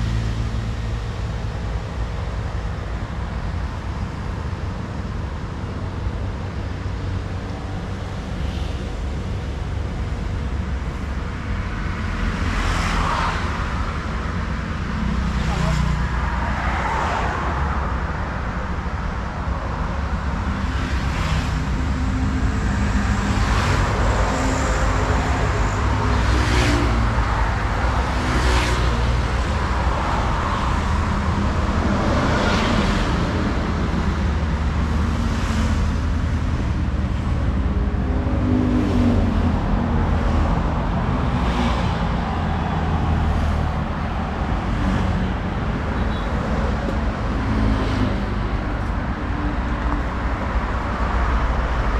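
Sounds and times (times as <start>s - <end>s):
low rumble of engines: 0.0s - 51.9s
vehicles passing: 0.0s - 51.9s.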